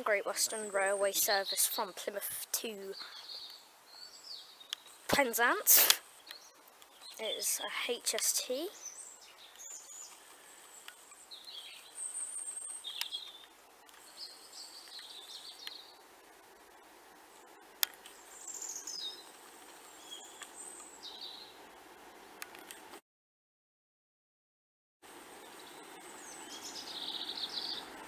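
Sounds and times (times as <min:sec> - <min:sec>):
songbirds chirping and singing: 0:00.0 - 0:21.8, 0:25.3 - 0:28.0
faint background noise: 0:00.0 - 0:23.0, 0:25.0 - 0:28.0
sharp clicks: 0:04.7 - 0:07.3.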